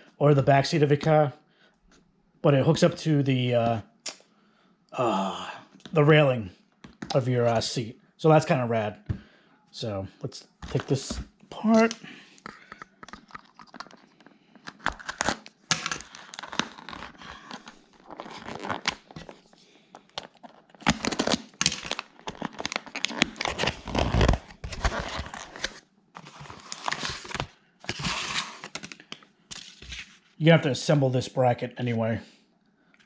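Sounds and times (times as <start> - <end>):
packaging being torn and crinkled: 14.7 - 29.1.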